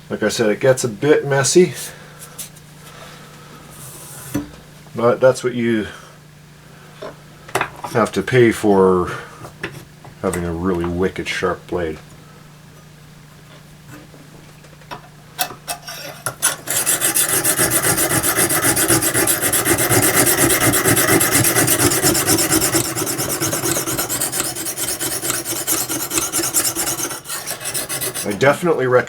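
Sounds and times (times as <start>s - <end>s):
sharpening stone scraping blade: 15.8s - 28.4s.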